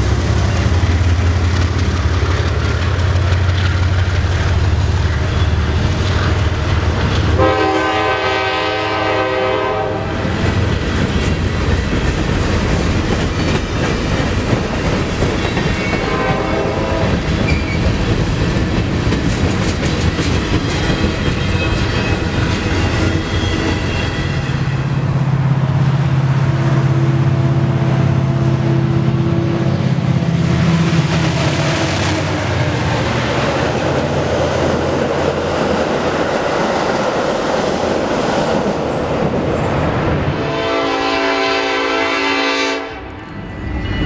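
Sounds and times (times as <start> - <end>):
freight train wheels clacking: 0.0 - 8.6, 10.1 - 25.8
commuter train low drone: 0.0 - 44.0.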